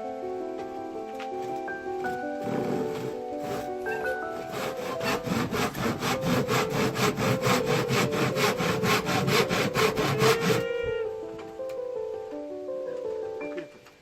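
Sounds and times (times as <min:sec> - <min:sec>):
background music: 0:00.0 - 0:14.0
hand saw cutting: 0:02.4 - 0:10.7.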